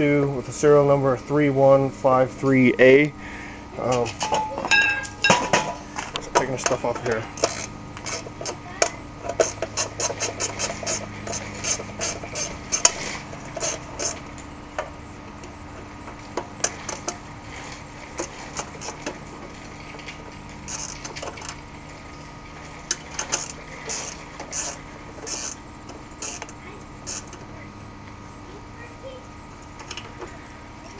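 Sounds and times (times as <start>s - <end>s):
hand tools clinking on metal: 3.9s - 5.7s.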